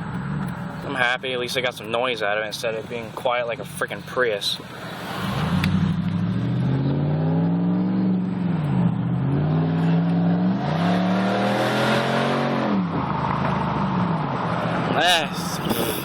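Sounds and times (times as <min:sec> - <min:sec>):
loud engine exhaust accelerating: 0:05.2 - 0:15.0.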